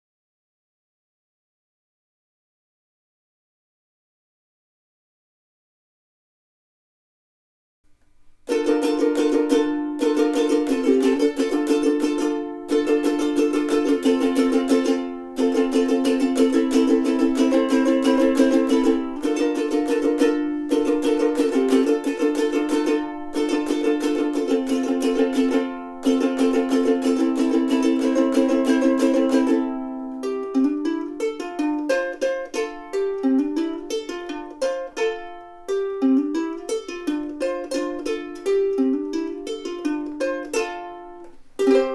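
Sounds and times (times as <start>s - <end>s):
ukulele playing: 8.2s - 41.9s.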